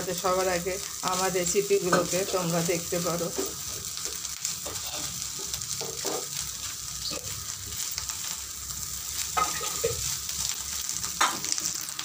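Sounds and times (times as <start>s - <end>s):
food sizzling in a pan: 0.0s - 12.0s
spatula scraping a pan: 3.2s - 7.9s, 9.2s - 10.6s.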